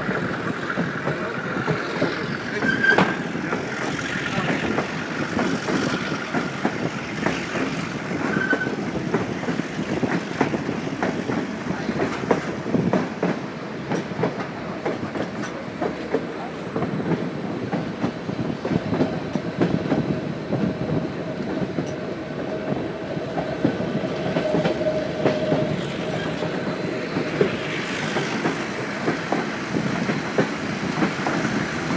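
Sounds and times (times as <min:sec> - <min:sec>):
train wheels clattering over joints: 0:00.0 - 0:31.9.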